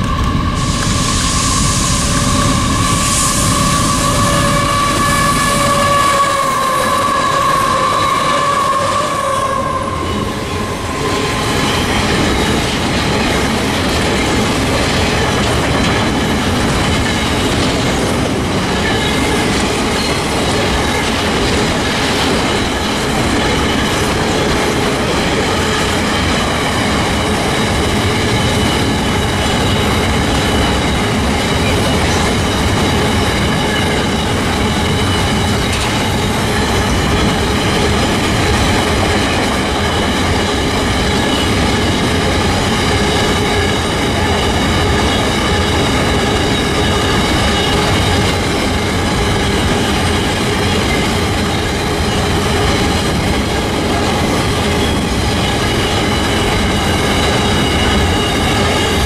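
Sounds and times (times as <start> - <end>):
wheels squealing: 0.0 - 13.5
diesel locomotive engine: 0.0 - 59.0
freight train wheels rumbling: 0.0 - 59.0
clickety-clack over rail joints: 4.4 - 59.0.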